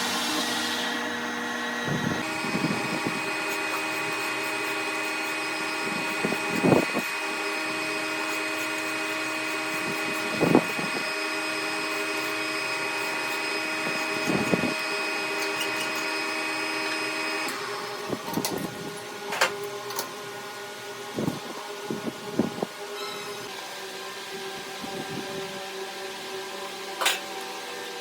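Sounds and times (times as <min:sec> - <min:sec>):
power tool motor whining: 0:00.0 - 0:19.5.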